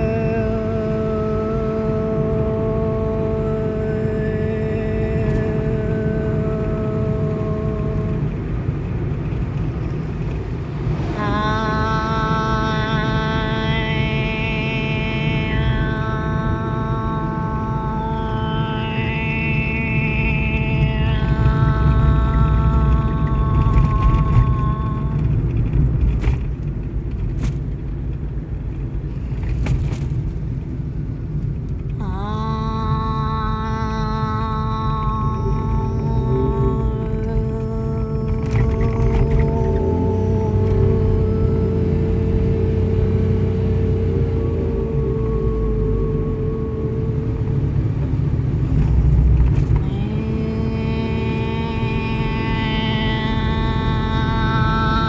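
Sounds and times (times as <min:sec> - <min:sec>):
low rumble: 0:00.0 - 0:55.0
person holding a vocal tone: 0:11.1 - 0:25.3, 0:32.0 - 0:48.0, 0:49.6 - 0:55.0.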